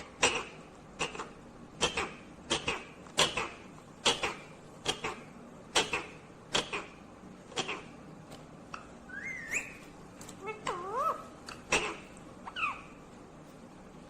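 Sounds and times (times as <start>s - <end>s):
parrot squawking: 9.1s - 13.1s.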